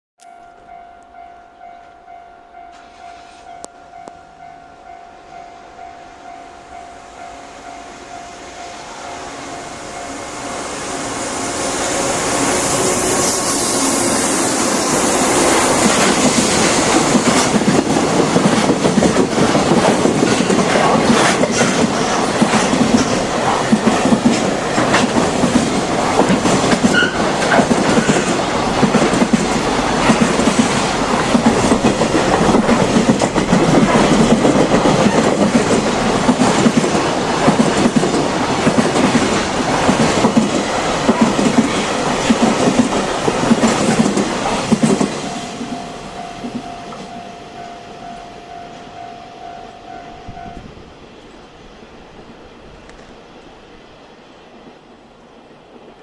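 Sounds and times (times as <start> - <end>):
locomotive hissing: 7.9 - 47.2
train wheels clattering over rail joints: 15.8 - 45.4.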